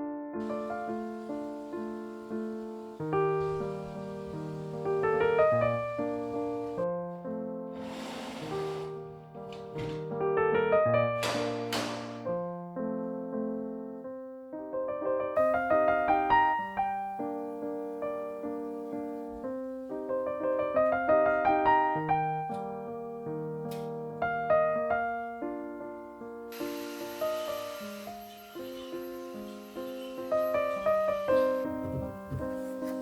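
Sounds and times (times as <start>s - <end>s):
solo piano piece: 0.0s - 33.0s
brief hiss: 7.8s - 9.0s, 26.5s - 31.7s.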